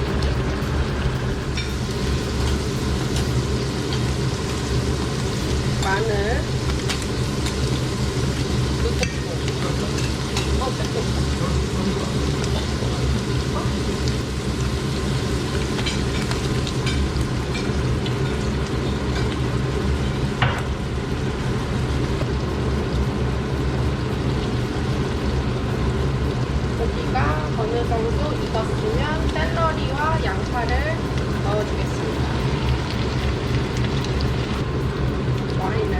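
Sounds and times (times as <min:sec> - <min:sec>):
utensil knocking pan: 0:00.0 - 0:04.1
low hum: 0:00.0 - 0:35.9
meat sizzling in a pan: 0:00.0 - 0:35.9.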